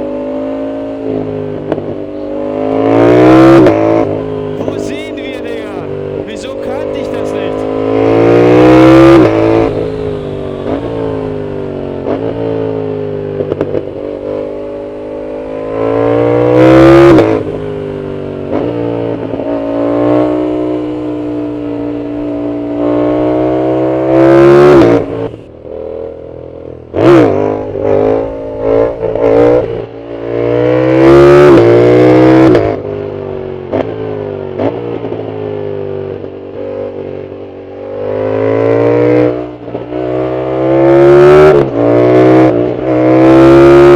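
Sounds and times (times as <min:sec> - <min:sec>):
motorcycle engine revving: 0:07.6 - 0:33.1.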